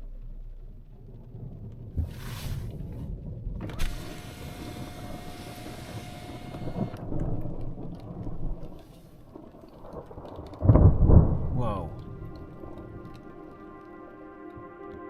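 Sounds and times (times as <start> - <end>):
thunder rumbling: 0.0 - 15.0
rushing hiss: 2.0 - 2.8, 3.8 - 7.0
sharp lightning crack: 2.0 - 13.7.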